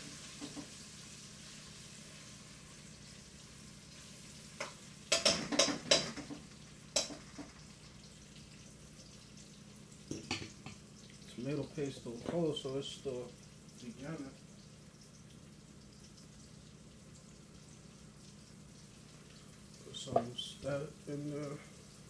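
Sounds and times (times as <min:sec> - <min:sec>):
mushrooms sizzling in a pot: 0:00.0 - 0:22.0
metal pots and utensils clattering: 0:05.1 - 0:06.4, 0:07.0 - 0:07.6, 0:10.1 - 0:10.8.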